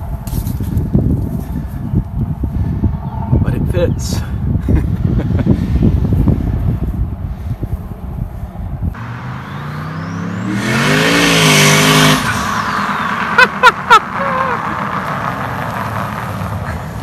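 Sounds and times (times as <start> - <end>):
sharp chirps: 9.0 - 13.3
engine revving: 9.0 - 17.0.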